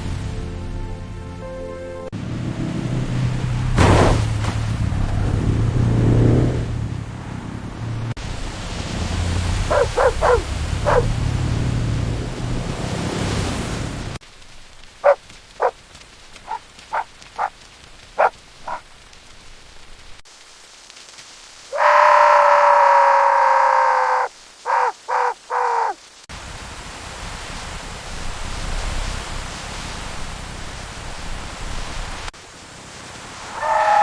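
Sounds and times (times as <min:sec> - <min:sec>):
heavy rain hiss: 0:08.2 - 0:34.0
dogs barking: 0:09.6 - 0:11.1, 0:15.0 - 0:15.8, 0:16.4 - 0:17.5, 0:18.2 - 0:18.9.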